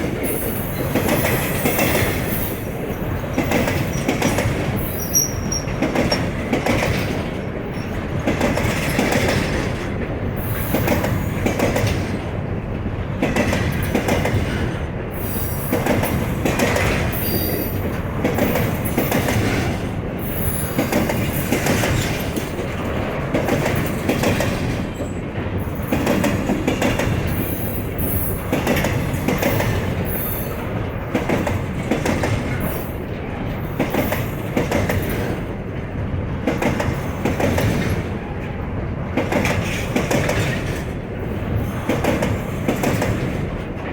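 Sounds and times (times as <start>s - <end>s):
train wheel squeal: 0.0s - 9.8s, 10.4s - 11.7s, 13.8s - 22.6s, 23.5s - 31.4s, 32.5s - 35.4s, 41.4s - 43.2s
wheels clattering over rail joints: 0.1s - 12.3s, 15.4s - 35.5s, 39.2s - 43.9s.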